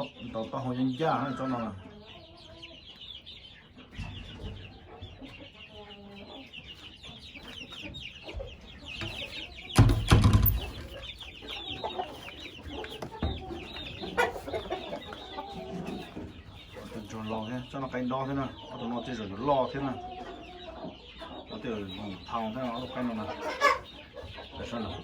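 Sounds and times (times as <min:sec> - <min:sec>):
chickens clucking: 0:00.0 - 0:25.0
loud dull thump: 0:09.8 - 0:10.8.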